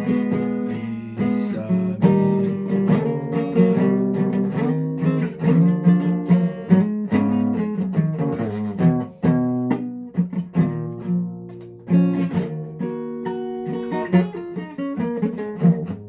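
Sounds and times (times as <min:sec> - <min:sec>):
person singing: 0:00.0 - 0:03.0
guitar chords strummed and picked: 0:00.0 - 0:16.0.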